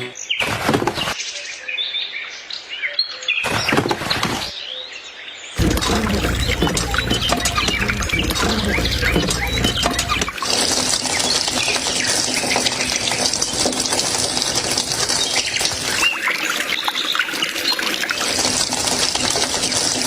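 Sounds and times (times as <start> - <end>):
water gushing from hand pump: 5.6 - 20.0.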